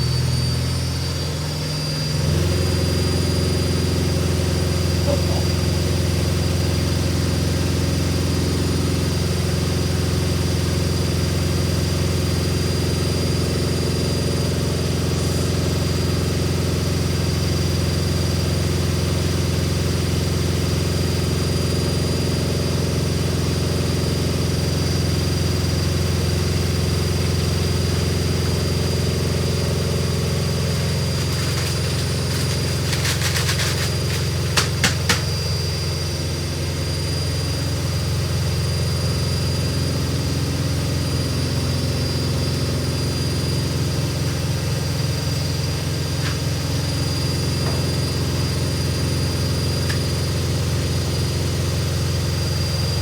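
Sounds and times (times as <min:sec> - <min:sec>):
washing machine spinning: 0:00.0 - 0:53.0
rattle: 0:30.3 - 0:35.7.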